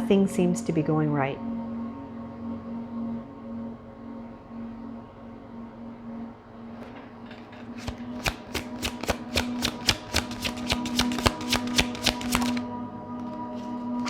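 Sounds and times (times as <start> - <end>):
cards shuffling clicks: 6.8 - 13.9.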